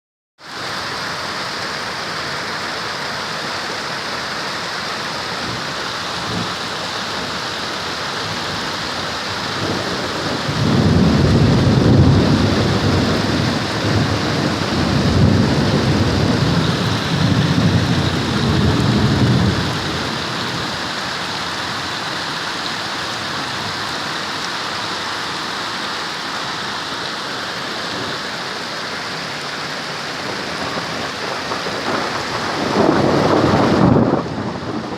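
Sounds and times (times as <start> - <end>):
heavy rain falling: 0.4 - 34.9
rolling thunder: 8.3 - 20.9, 30.2 - 34.9.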